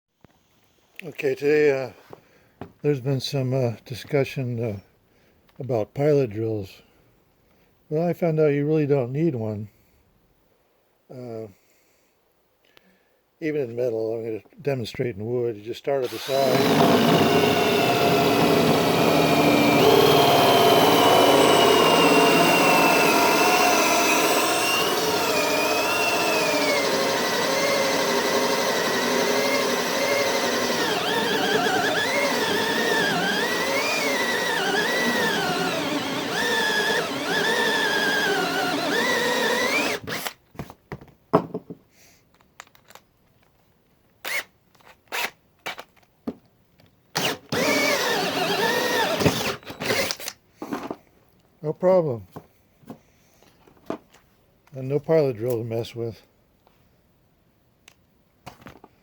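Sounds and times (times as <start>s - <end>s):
power drill hole saw cutting wood: 16.0s - 40.4s, 47.2s - 50.4s
short drill bursts: 16.0s - 40.4s, 47.2s - 50.3s.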